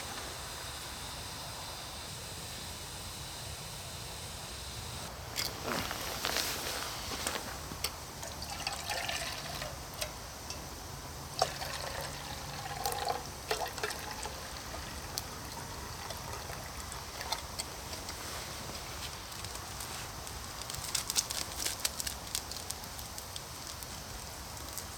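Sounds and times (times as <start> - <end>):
campfire crackling: 0.0 - 24.9
water pouring and trickling: 8.2 - 18.3.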